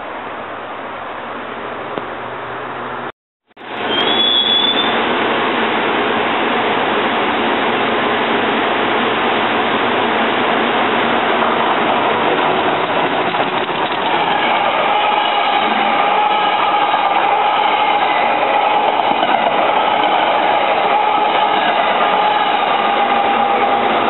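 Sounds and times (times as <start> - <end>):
train wheels rushing on rail: 1.6 - 24.0
electric locomotive whine: 3.6 - 24.0.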